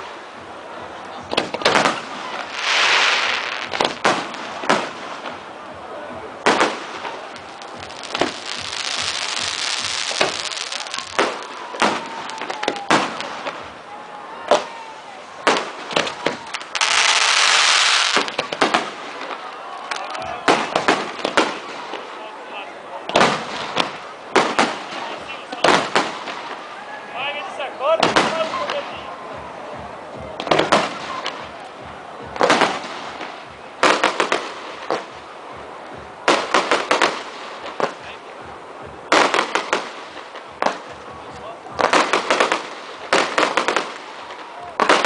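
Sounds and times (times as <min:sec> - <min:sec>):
fireworks bangs: 0:01.2 - 0:05.5, 0:06.4 - 0:13.8, 0:14.5 - 0:22.2, 0:23.0 - 0:26.7, 0:27.4 - 0:29.1, 0:29.7 - 0:45.0
fireworks hiss: 0:01.6 - 0:05.4, 0:06.4 - 0:13.6, 0:15.4 - 0:19.4.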